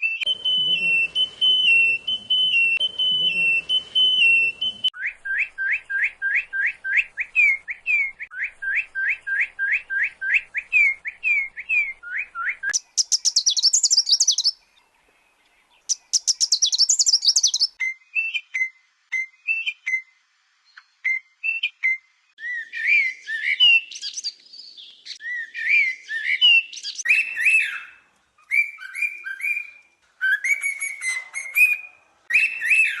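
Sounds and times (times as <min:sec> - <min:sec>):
high buzzy bird trill: 0:00.0 - 0:10.4
rising whistled bird notes: 0:00.0 - 0:14.5, 0:15.9 - 0:33.0
varied whistled bird phrases: 0:00.0 - 0:14.6, 0:15.9 - 0:20.1, 0:21.0 - 0:33.0.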